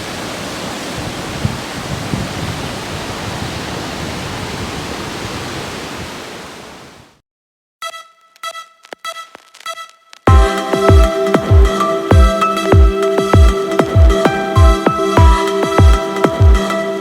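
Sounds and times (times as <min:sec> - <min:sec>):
waterfall rushing: 0:00.0 - 0:07.2.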